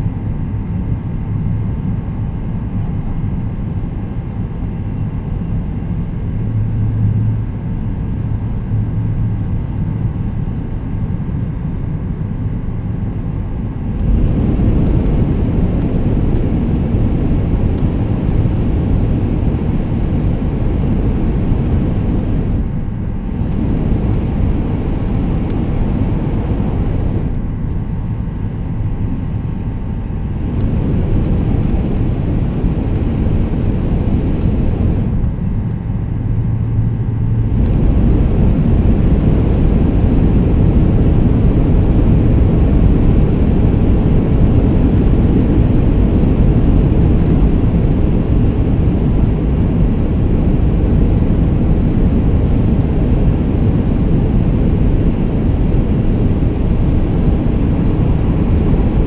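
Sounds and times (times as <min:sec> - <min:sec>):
faint motor whine: 0:00.0 - 0:59.0
rushing air: 0:13.8 - 0:27.6, 0:30.1 - 0:35.5, 0:37.2 - 0:59.0.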